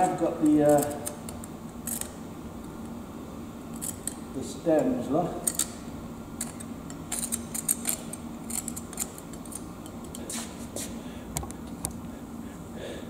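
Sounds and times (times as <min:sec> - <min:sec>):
faint steady hum: 0:00.0 - 0:13.0
metal piece clicks and scrapes: 0:00.4 - 0:02.2, 0:03.7 - 0:04.2, 0:05.4 - 0:05.8, 0:06.4 - 0:10.2.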